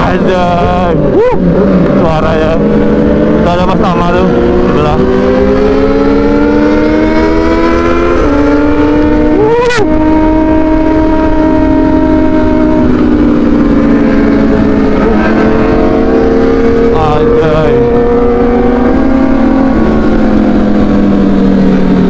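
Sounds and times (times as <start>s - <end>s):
sport-bike engines revving: 0.0s - 22.0s
wind rushing: 4.2s - 22.0s.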